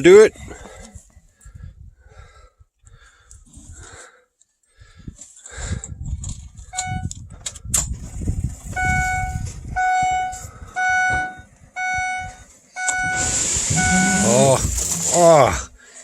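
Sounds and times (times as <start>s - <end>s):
dashboard warning chime beeping: 6.8s - 7.1s, 8.8s - 15.4s
rustling and knocks in cab: 11.0s - 12.1s, 12.9s - 15.3s.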